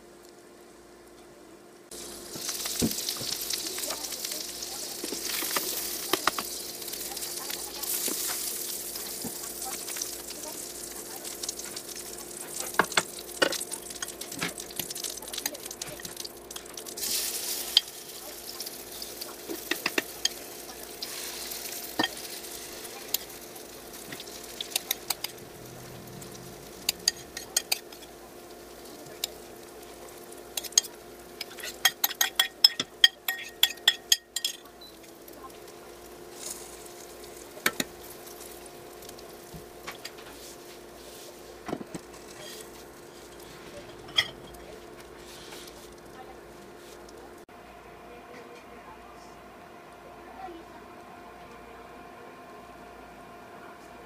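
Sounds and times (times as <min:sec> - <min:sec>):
batter sizzling in hot oil: 0:01.9 - 0:47.5.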